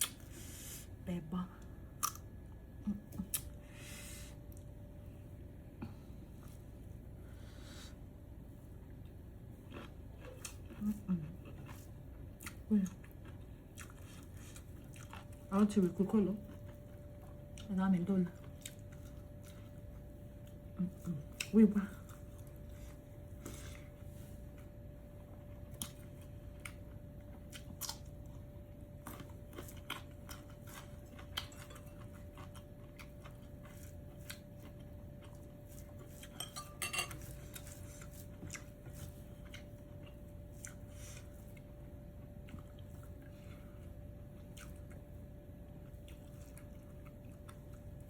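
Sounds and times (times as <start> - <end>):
faint steady hum: 0.0 - 48.0
cutlery clinking on dishes: 36.4 - 37.3.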